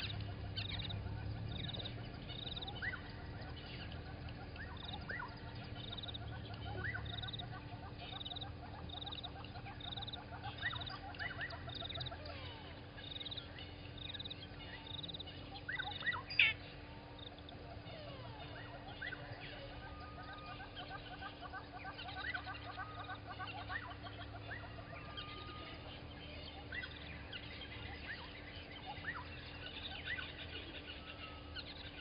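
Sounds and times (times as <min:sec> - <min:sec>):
birds chirping: 0:00.0 - 0:32.0
steady low hum: 0:00.0 - 0:32.0.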